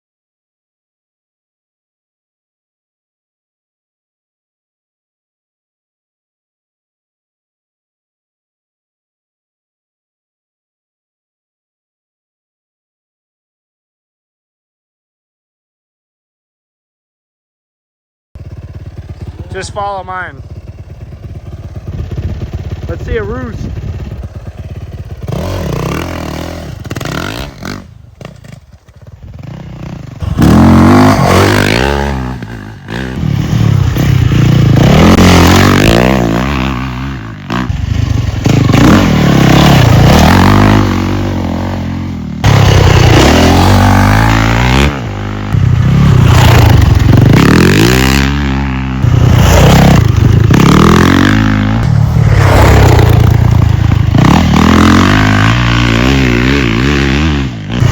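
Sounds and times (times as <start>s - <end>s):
dirt bike engine revving: 18.4s - 57.9s.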